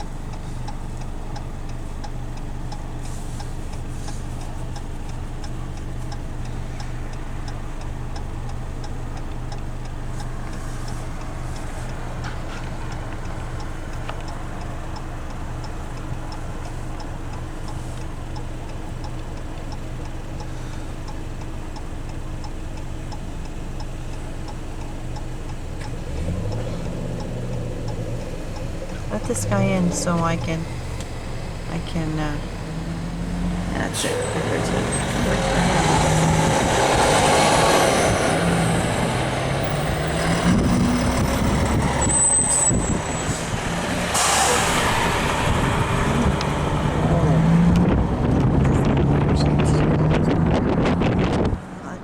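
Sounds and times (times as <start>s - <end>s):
engine and road hum: 0.0s - 52.0s
turn signal clicking: 0.0s - 52.0s.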